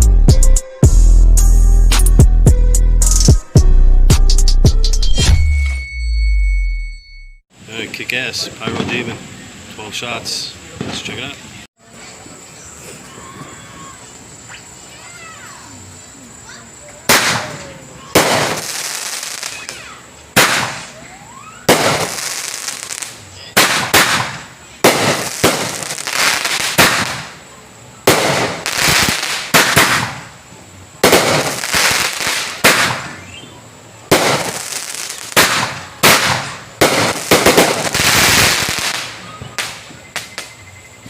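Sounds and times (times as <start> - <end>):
fireworks crackle and hiss: 7.6 - 40.8
fireworks bangs: 8.4 - 9.3, 10.7 - 11.3, 17.0 - 30.4, 31.0 - 33.5, 34.1 - 40.6.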